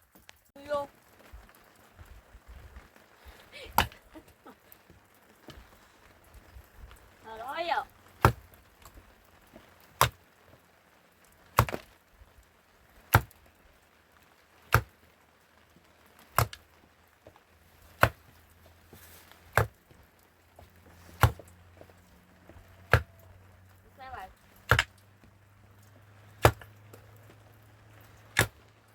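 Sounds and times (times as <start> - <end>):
axe chopping wood: 3.7 - 4.0, 8.2 - 8.6, 10.0 - 10.2, 11.6 - 11.9, 13.1 - 13.4, 14.7 - 15.0, 16.3 - 16.6, 17.9 - 18.4, 19.3 - 19.9, 21.1 - 21.5, 22.9 - 23.3, 24.6 - 25.0, 26.3 - 26.7, 28.1 - 28.6.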